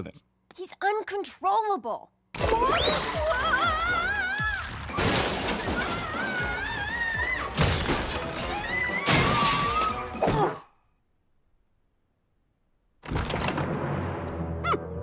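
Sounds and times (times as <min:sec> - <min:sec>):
background music: 0:02.4 - 0:10.6, 0:13.5 - 0:15.0
crashing and shattering: 0:04.7 - 0:10.2.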